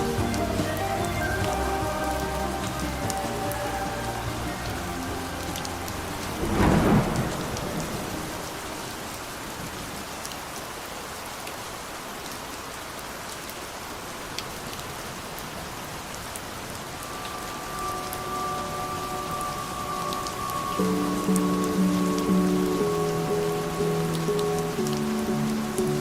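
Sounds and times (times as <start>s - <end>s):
thunder rumble: 0.0s - 10.0s
heavy rain: 0.0s - 26.0s
faint music tones: 16.8s - 26.0s.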